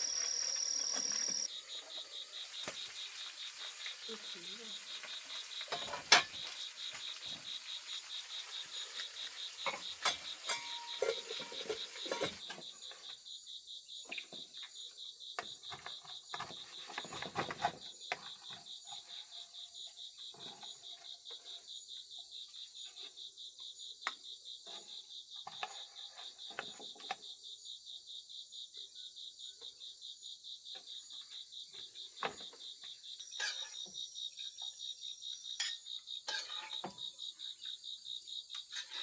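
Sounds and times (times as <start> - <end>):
crickets chirping: 0.0 - 39.0.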